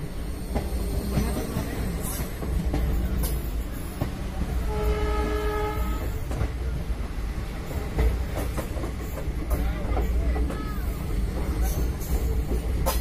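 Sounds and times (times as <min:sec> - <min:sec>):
train rumble inside coach: 0:00.0 - 0:13.0
train horn: 0:04.6 - 0:06.3.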